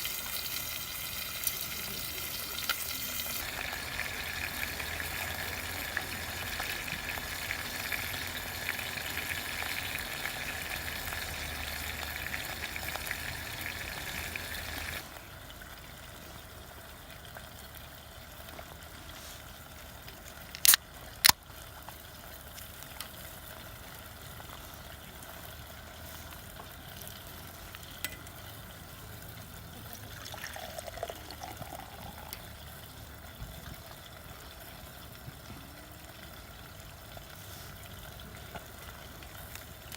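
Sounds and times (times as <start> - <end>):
camp stove hissing: 0.0 - 16.7.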